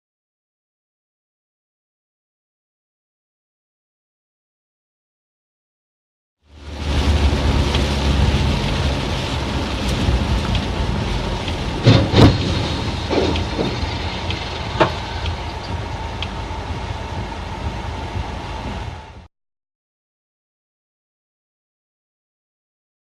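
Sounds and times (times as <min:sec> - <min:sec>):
car road and engine rumble: 0:06.4 - 0:19.3
small knocks: 0:14.6 - 0:15.7.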